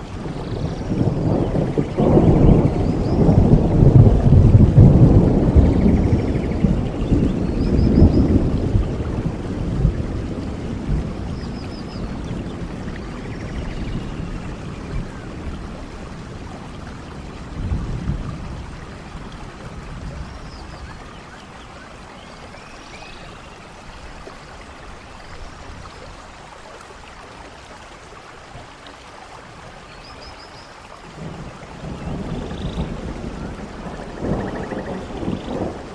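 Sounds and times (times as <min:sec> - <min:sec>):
thunder rumble: 0:00.0 - 0:21.1, 0:31.1 - 0:35.9
steady rain: 0:00.0 - 0:35.9.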